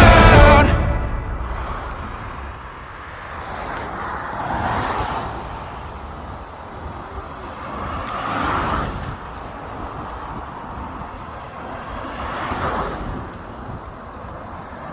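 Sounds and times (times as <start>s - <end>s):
vehicles passing: 0.0s - 14.9s
wind rumble on microphone: 4.6s - 14.8s.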